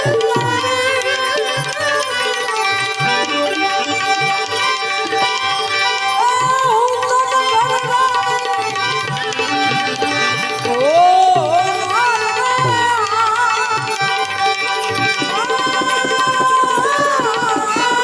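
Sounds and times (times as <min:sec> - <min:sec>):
tabla drumming: 0:00.0 - 0:18.0
sliding wavering melody: 0:00.2 - 0:18.0
steady held notes: 0:00.6 - 0:18.0.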